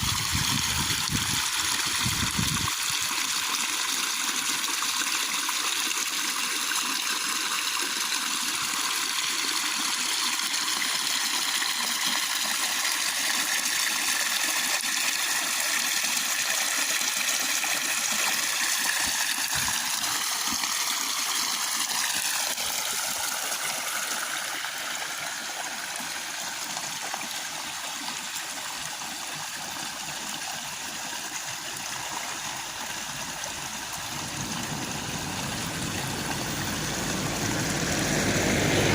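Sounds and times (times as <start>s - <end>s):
heavy rain in strong wind: 33.2s - 38.9s.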